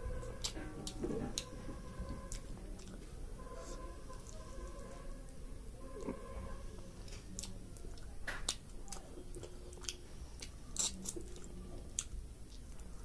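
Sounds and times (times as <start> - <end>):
person chewing with wet clicks: 0.2 - 4.5, 7.0 - 13.0.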